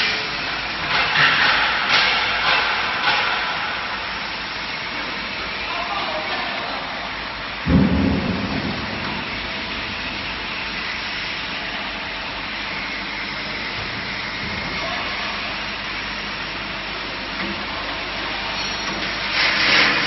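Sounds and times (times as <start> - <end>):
machinery hissing and rumbling: 0.0 - 20.0
heavy low thump: 7.7 - 10.6.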